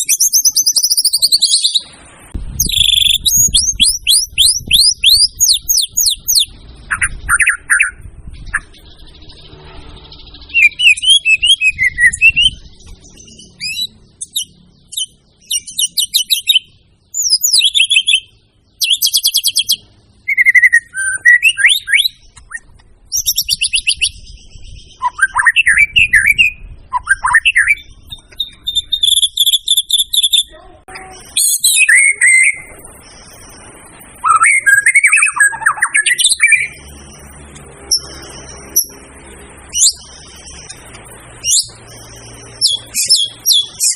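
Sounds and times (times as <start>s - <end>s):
songbird singing whistled phrases: 0.0s - 1.9s, 2.5s - 33.6s, 34.2s - 39.0s, 39.7s - 43.9s
thin steady high tone: 27.8s - 43.9s.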